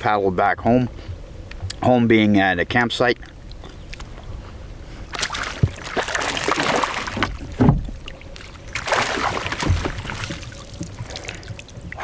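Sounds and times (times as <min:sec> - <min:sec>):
water splashing beside canoe: 0:03.2 - 0:12.0.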